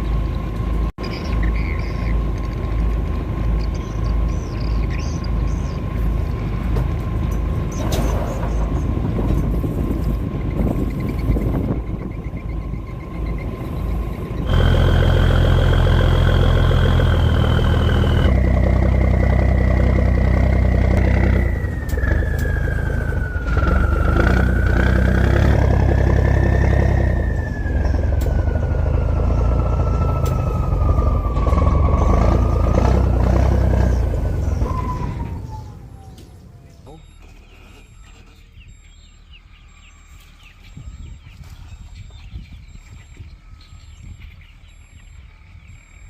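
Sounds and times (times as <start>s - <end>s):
boat engine running: 0.0s - 38.4s
high whine falling in pitch: 11.6s - 37.2s.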